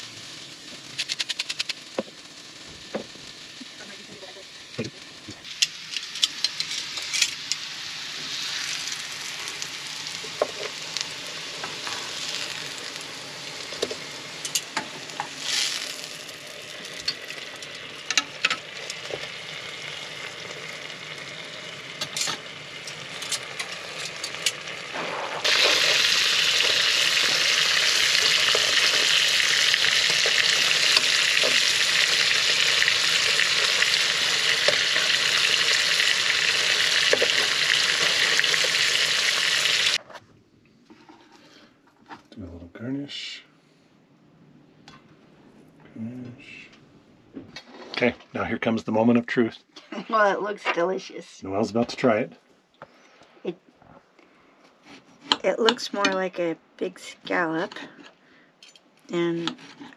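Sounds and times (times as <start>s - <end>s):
food sizzling in a pan: 0.0s - 40.0s.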